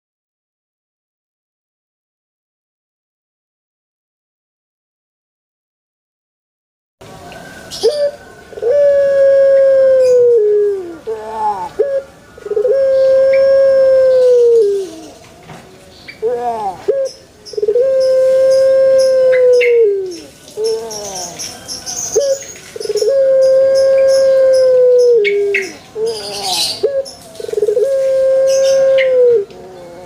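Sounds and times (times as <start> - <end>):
dove cooing: 7.7 - 15.2, 16.2 - 30.0.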